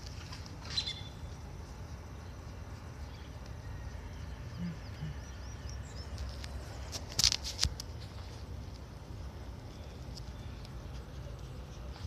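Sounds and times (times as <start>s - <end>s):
faint bird chirps: 0.6s - 1.4s, 2.2s - 6.4s.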